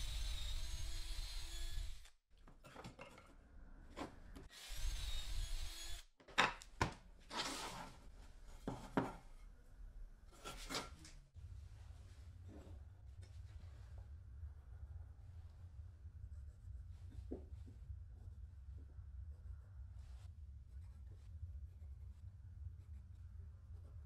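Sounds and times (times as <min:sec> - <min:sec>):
small power tool running: 0:00.0 - 0:02.2, 0:04.5 - 0:06.1
rubbing and scraping on wood: 0:07.3 - 0:09.4, 0:10.3 - 0:11.2.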